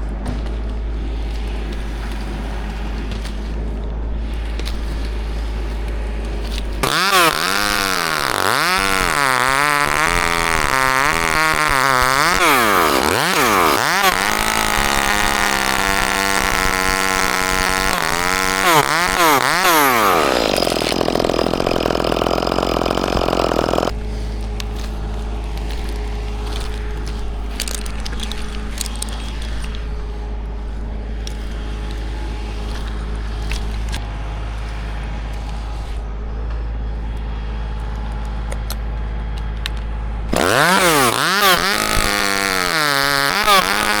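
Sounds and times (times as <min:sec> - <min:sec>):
chainsaw engine revving: 0:04.3 - 0:34.0, 0:40.3 - 0:44.0.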